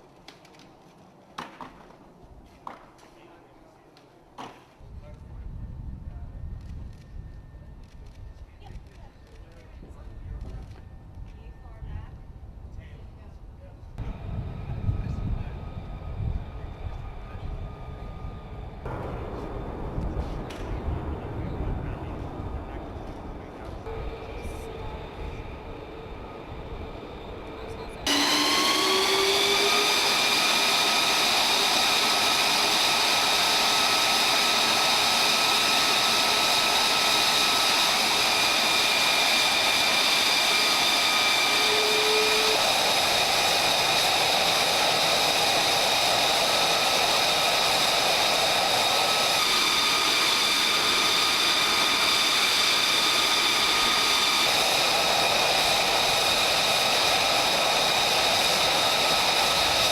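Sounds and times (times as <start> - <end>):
jet engine roaring with whine: 4.9 - 13.4, 14.0 - 59.9
low rushing layer: 13.9 - 59.9.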